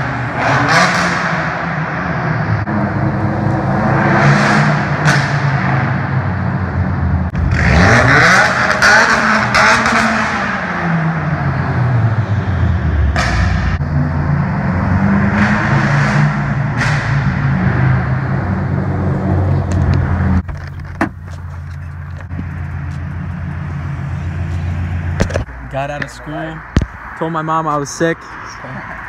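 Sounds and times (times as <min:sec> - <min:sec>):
loud car engine revving: 0:00.0 - 0:20.4.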